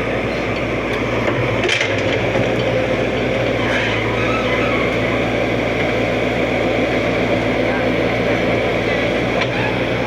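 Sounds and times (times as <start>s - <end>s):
excavator engine running: 0.0s - 10.0s.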